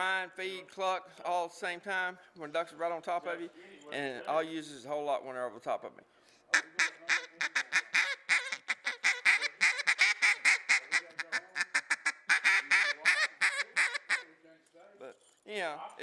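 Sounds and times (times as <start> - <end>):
duck call clucks and quacks: 6.5 - 14.3.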